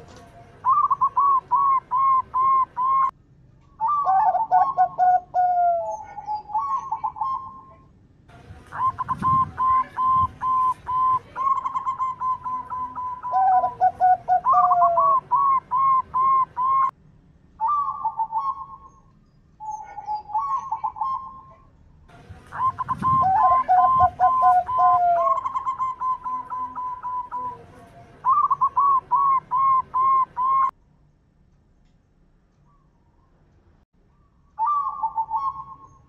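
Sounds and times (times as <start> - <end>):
doves cooing: 0.0 - 3.1, 3.8 - 7.9, 8.7 - 16.9, 19.6 - 21.7, 22.3 - 30.7, 34.6 - 36.0.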